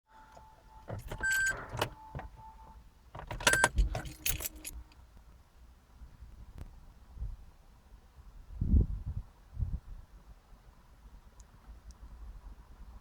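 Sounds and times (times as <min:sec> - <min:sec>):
keys jangling and clicking: 0:00.3 - 0:02.6, 0:03.2 - 0:04.9.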